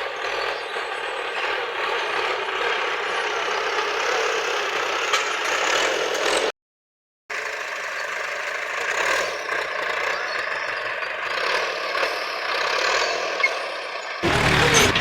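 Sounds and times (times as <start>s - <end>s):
loud deep engine sound: 0.0s - 6.5s, 7.3s - 15.0s
distant tractor engine hiss: 11.0s - 15.0s.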